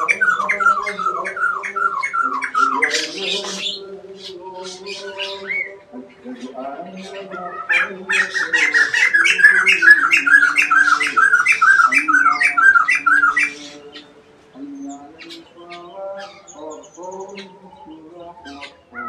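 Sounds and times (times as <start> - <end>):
bird squawking harshly: 0.0 - 5.8, 7.0 - 14.1
other birds calling: 0.0 - 19.0.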